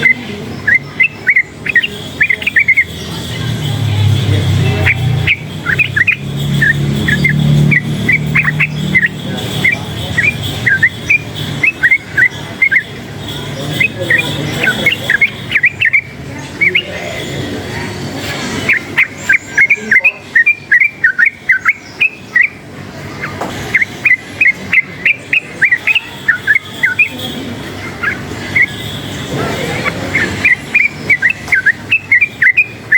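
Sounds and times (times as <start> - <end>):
bird singing whistled notes: 0.0 - 17.3, 18.6 - 32.9
low engine hum: 0.0 - 20.0.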